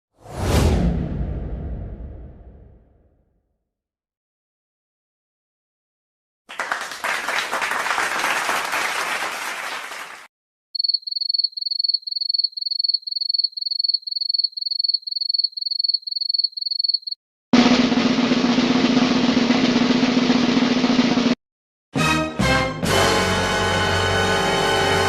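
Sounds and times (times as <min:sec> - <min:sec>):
crowd clapping: 0:06.5 - 0:10.3
cricket chirping: 0:10.8 - 0:17.2.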